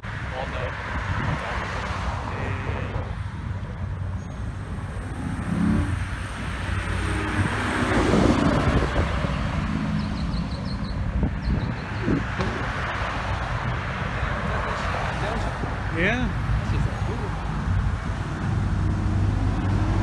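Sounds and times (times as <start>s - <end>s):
car passing: 0.0s - 20.0s
steady low engine rumble: 0.0s - 20.0s.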